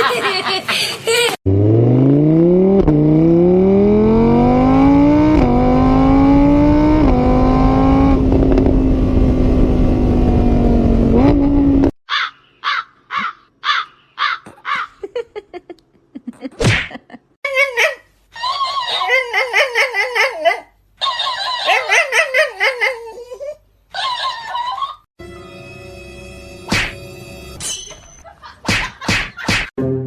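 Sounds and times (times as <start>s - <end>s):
engine accelerating through gears: 1.5s - 12.0s.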